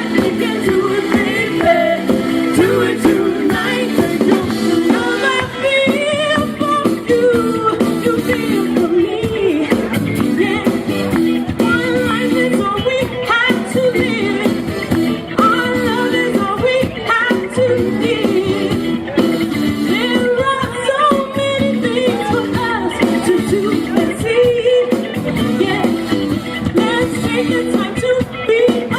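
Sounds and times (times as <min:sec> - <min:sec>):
man singing: 0:00.0 - 0:10.9
live band playing: 0:00.0 - 0:28.9.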